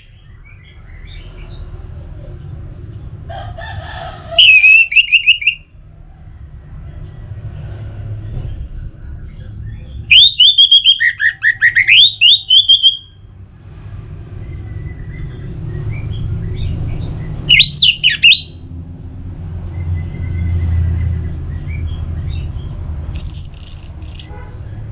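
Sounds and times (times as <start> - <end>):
thrush singing whistled phrases: 4.4 - 5.7, 10.1 - 13.2, 17.5 - 18.6, 23.2 - 24.4.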